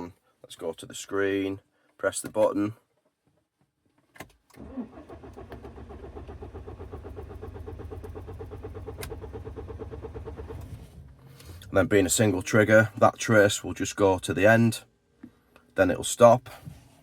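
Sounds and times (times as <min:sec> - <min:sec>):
diesel engine cranking: 0:04.6 - 0:12.2.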